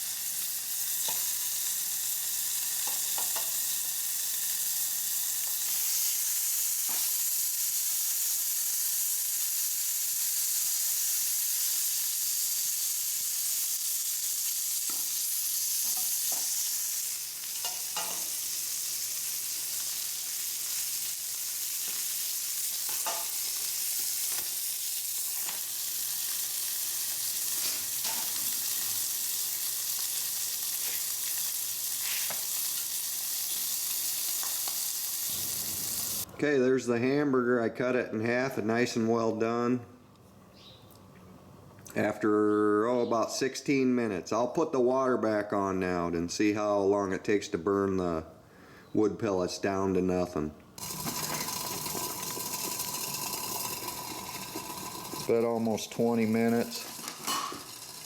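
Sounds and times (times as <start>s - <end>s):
hamburger sizzling: 0.0s - 36.3s, 50.8s - 58.0s.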